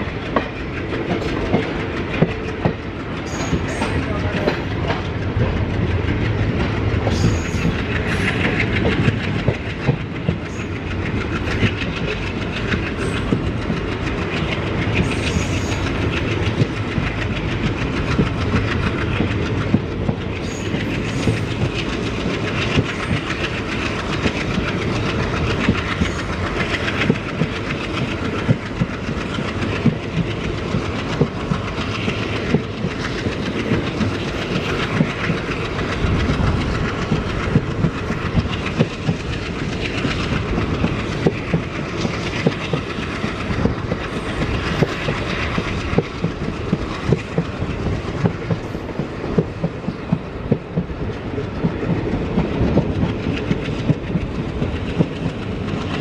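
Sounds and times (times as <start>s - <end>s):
passenger train rumble: 0.0s - 56.0s
wheels clacking over rail joints: 0.0s - 56.0s.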